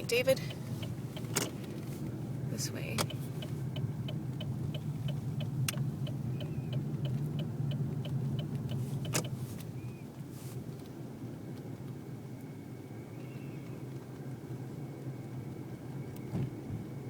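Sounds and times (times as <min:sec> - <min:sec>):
turn signal ticking: 0:00.0 - 0:10.0
car rumble in cabin: 0:00.0 - 0:17.0.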